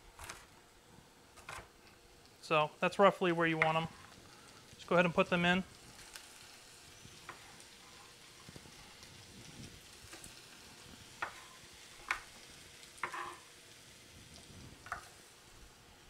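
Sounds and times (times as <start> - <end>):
chicken sizzling in a wok: 1.7 - 16.0
knife scraping cutting board: 13.0 - 13.4.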